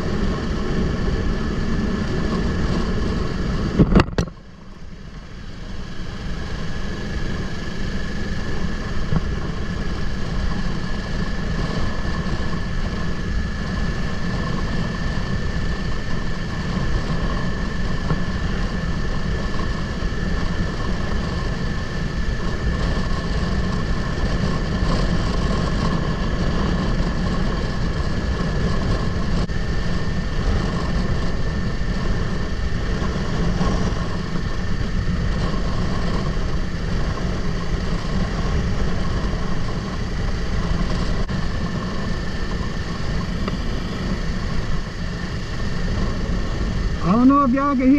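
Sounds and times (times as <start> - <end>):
high-pitched whine: 0.0 - 47.9
motorcycle engine running: 0.0 - 47.9
wind buffeting microphone: 0.0 - 47.9.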